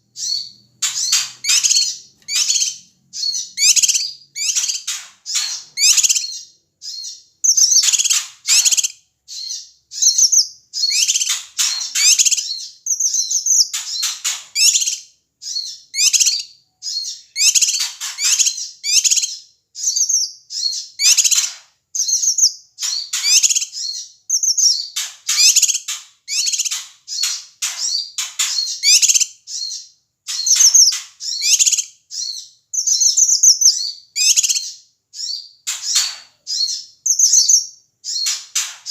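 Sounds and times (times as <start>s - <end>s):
bird chattering calls: 0.2s - 15.0s, 21.0s - 23.8s, 24.4s - 31.9s.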